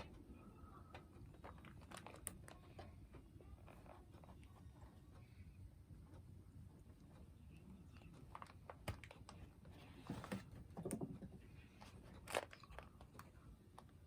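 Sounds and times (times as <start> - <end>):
cat scratching cardboard box: 9.3 - 11.3.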